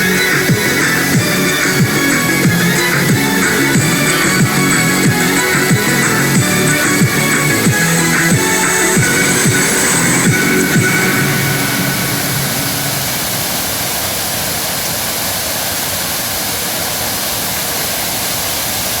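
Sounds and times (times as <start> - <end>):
deep sliding bass notes: 0.0 - 14.4
waterfall rushing: 0.0 - 19.0.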